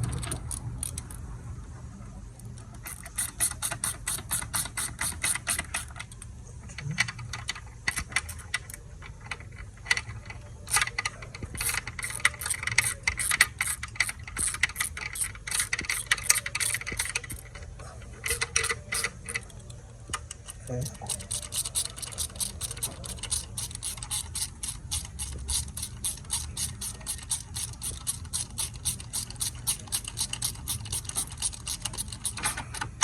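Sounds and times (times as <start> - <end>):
ratchet wrench clicking: 0.0 - 1.2, 2.8 - 6.2, 10.7 - 17.5, 18.2 - 19.6, 20.5 - 33.0.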